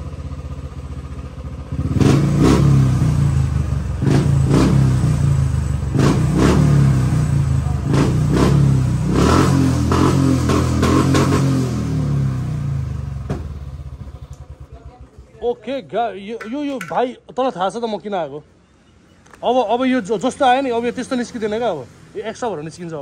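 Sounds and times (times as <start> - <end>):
motorcycle engine revving: 0.0 - 15.5.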